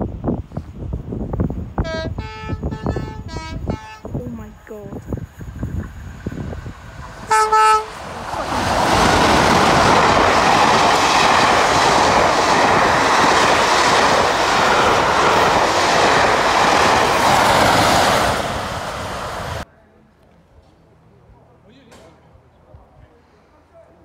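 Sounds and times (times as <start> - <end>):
passing train engine: 0.0 - 19.7
locomotive horn blast: 1.8 - 4.2, 7.2 - 8.0.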